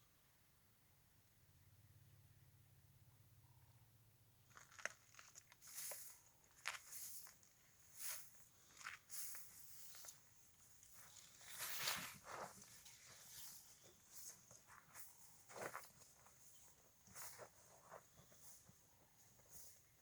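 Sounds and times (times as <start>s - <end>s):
elephant scraping and rustling: 11.1s - 14.4s.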